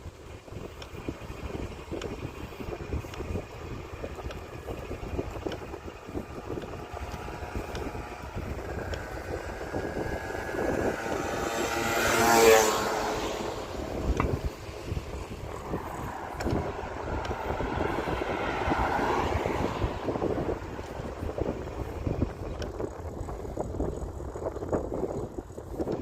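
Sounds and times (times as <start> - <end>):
bicycle rolling noise: 0.0 - 26.0
wind noise: 0.0 - 26.0
motor vehicle passing by: 5.4 - 22.6.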